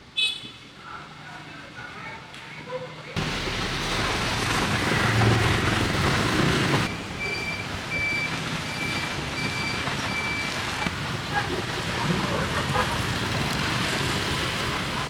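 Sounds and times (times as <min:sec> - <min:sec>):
street traffic: 0:00.0 - 0:15.0
reversing alarm beeping: 0:06.9 - 0:10.9.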